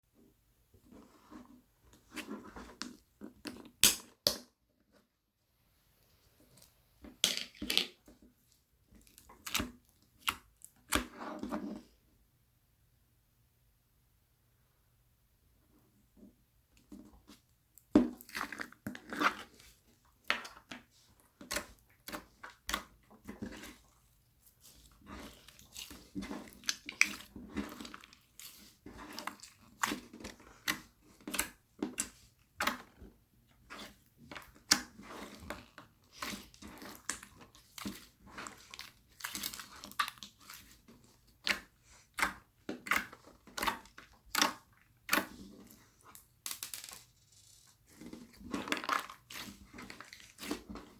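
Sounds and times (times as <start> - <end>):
slime squishing with wet pops: 6.6 - 11.4, 16.7 - 50.9.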